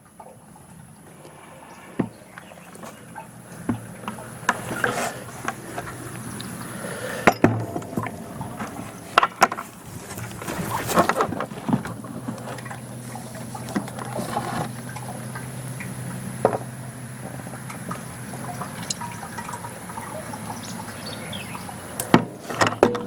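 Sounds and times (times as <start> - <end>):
oil pouring from bucket: 1.9 - 22.9
bucket knocking against metal: 22.1 - 23.0.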